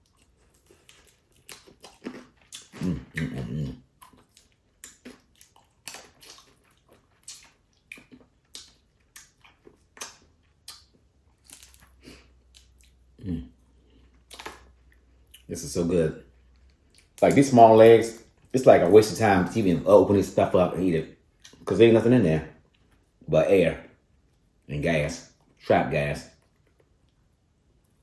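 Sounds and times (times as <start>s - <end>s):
chewing and sucking: 0.0s - 15.5s
crab shells cracking: 0.2s - 3.2s, 4.1s - 12.0s.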